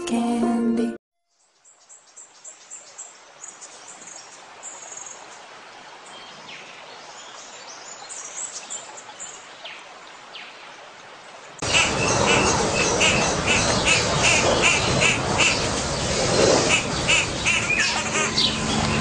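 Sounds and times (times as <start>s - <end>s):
birds chirping: 11.6s - 19.0s.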